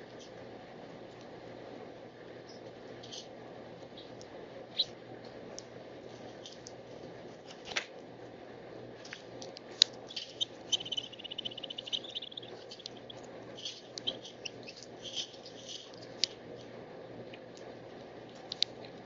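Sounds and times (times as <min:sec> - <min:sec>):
small birds chipping: 0:02.4 - 0:05.0, 0:09.1 - 0:16.5
bird rapid trill: 0:10.1 - 0:15.9.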